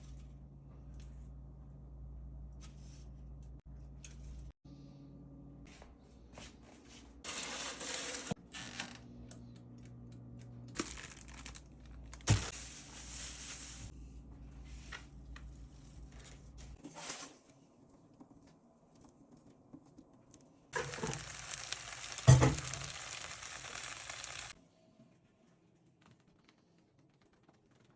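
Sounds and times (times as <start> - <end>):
low steady hum: 0.0 - 7.1
crinkling and tearing: 10.7 - 12.5.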